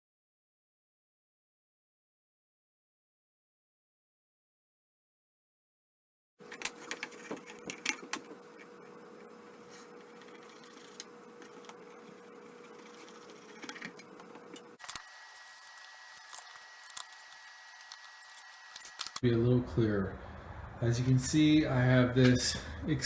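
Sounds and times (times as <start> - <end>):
steady background hum: 6.4 - 23.0
faint handling clicks and taps: 6.5 - 15.0.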